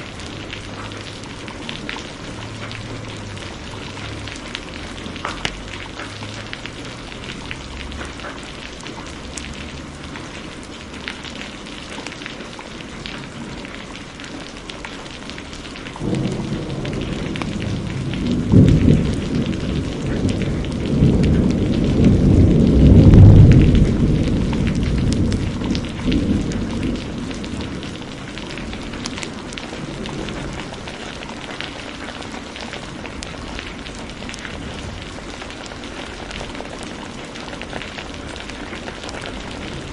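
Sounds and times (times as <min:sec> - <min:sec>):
heavy rain: 0:00.0 - 0:39.9
thunder rumbling: 0:16.0 - 0:39.9.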